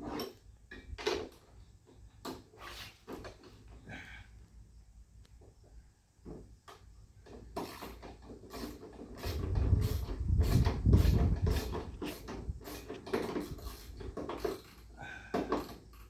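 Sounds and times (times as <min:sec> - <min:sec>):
hand tools on metal: 0:07.2 - 0:16.0
low rumble of handling: 0:09.3 - 0:16.0.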